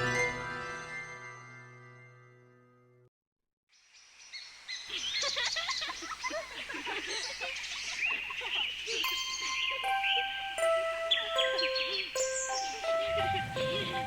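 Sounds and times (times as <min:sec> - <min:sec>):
birds chirping and tweeting: 0:03.8 - 0:14.0
song held notes: 0:09.0 - 0:14.0.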